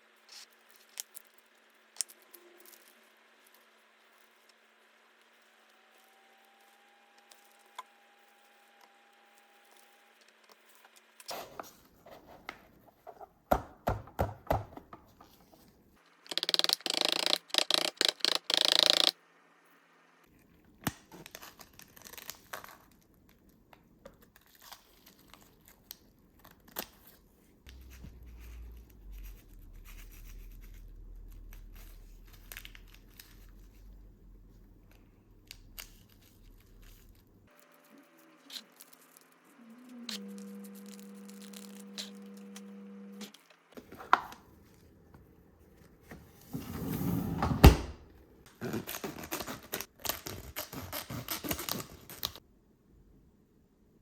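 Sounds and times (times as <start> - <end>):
packaging being torn open: 48.6 - 52.4.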